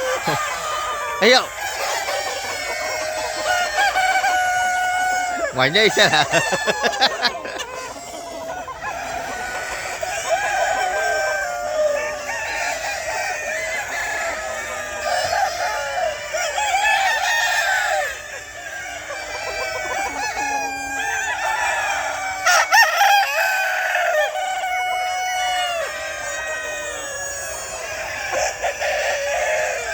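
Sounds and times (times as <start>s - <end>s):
chickens clucking: 0.0s - 29.9s.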